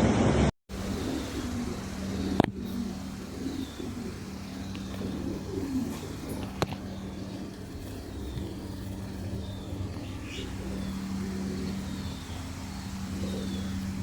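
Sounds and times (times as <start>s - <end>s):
low motor hum: 0.0s - 14.0s
small birds chirping: 0.7s - 14.0s.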